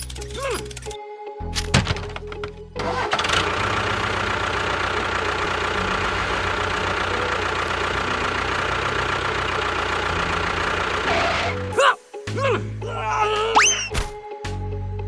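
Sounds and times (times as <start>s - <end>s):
engine running with whine: 2.7s - 11.7s.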